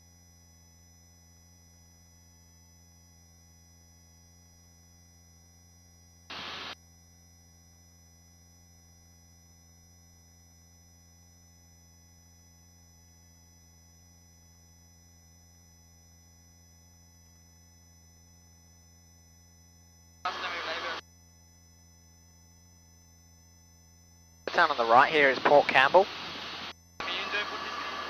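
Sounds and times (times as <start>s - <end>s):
headset microphone hiss burst: 6.3s - 6.8s, 24.5s - 28.0s
helicopter hum through headset: 25.2s - 28.0s.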